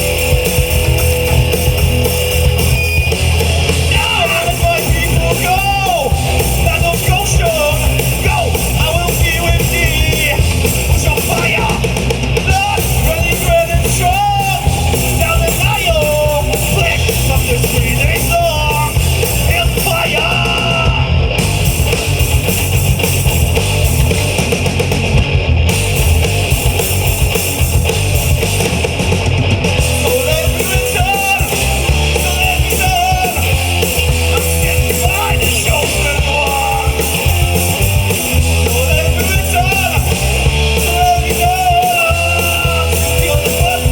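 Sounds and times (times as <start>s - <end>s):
rock band playing loudly: 0.0s - 43.9s.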